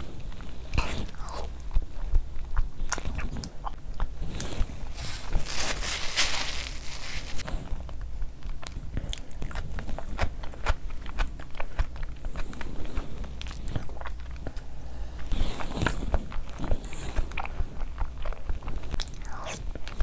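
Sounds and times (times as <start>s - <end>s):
wet chewing with lip smacks: 8.0s - 20.0s.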